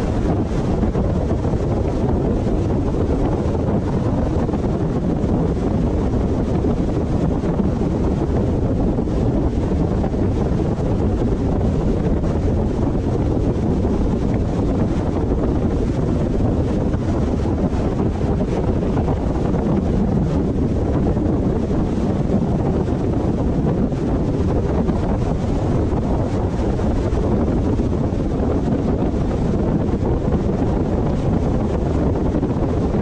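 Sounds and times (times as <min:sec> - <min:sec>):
car road and wind noise: 0:00.0 - 0:33.0
wind buffeting microphone: 0:00.0 - 0:33.0.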